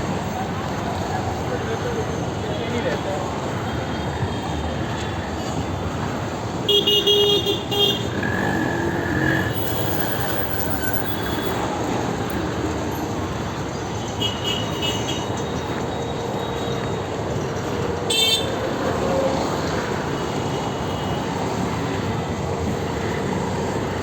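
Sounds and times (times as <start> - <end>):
street traffic rumble: 0.0 - 24.0
vehicle horns honking: 6.7 - 10.2, 14.1 - 15.4, 18.1 - 18.6.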